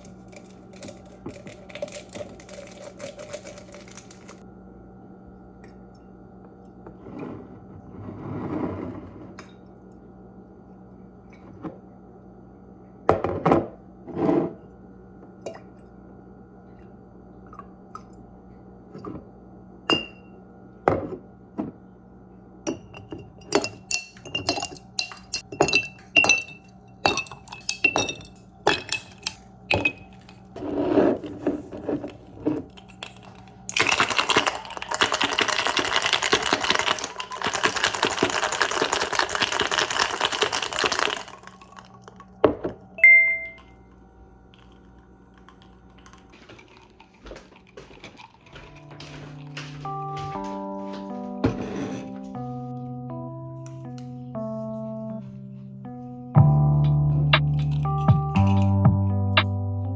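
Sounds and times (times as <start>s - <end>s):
dishes and utensils clinking: 22.7s - 41.7s, 43.0s - 43.6s, 51.4s - 52.3s.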